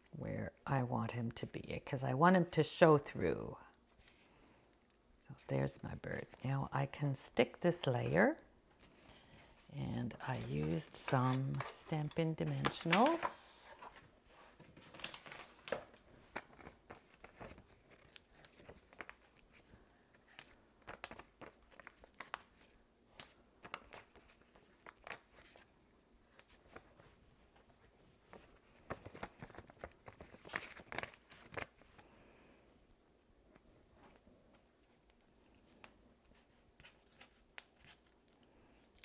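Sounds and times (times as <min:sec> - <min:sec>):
paper and plastic crinkling: 0:08.8 - 0:32.2.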